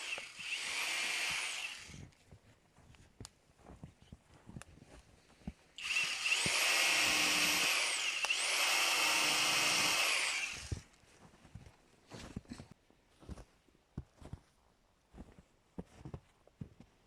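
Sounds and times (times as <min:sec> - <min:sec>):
small power tool motor whine: 0:00.0 - 0:02.0, 0:05.8 - 0:10.8.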